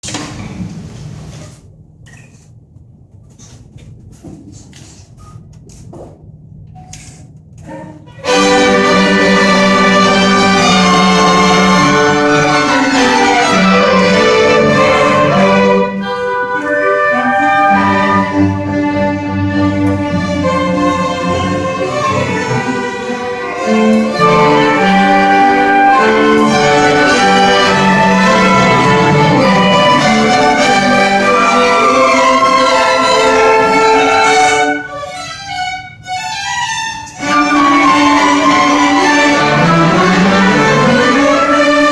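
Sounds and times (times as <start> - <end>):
cellos: 6.8 - 41.9
violins: 7.6 - 41.9.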